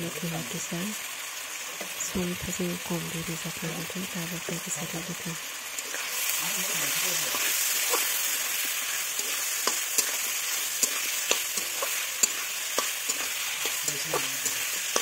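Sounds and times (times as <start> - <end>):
food sizzling in a pan: 0.0 - 15.0
spatula scraping a pan: 5.8 - 15.0.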